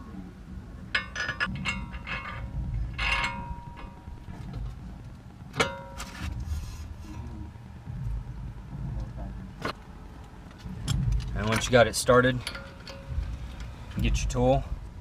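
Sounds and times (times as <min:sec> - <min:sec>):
steel parts clinking and clanking: 0:00.9 - 0:06.4, 0:10.5 - 0:14.5.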